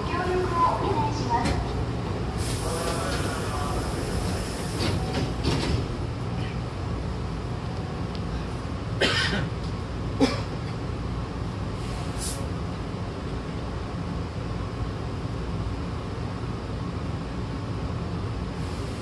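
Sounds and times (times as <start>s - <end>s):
train equipment humming: 0.0s - 19.0s
short hiss: 11.8s - 12.5s.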